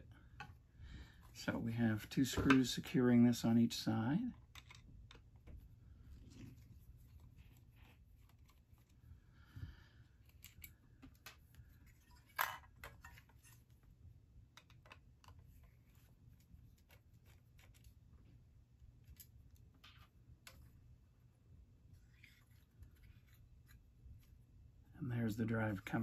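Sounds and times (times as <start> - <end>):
small parts set down: 10.4 - 13.4.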